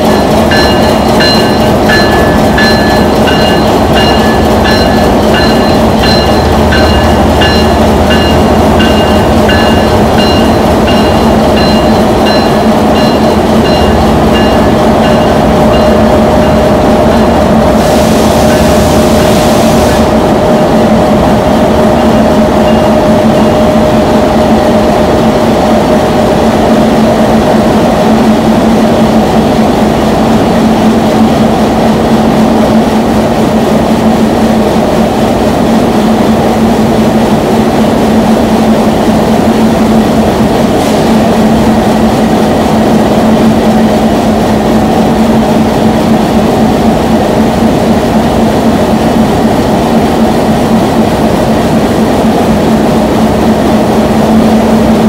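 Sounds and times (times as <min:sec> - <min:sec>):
locomotive engine drone: 0:00.0 - 0:55.0.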